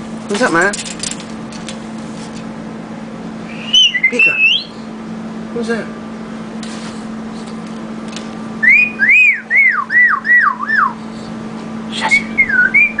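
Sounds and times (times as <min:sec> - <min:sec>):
steady low hum: 0:00.0 - 0:13.0
parrot whistling swooping notes: 0:03.5 - 0:04.8, 0:08.6 - 0:11.0, 0:11.9 - 0:13.0.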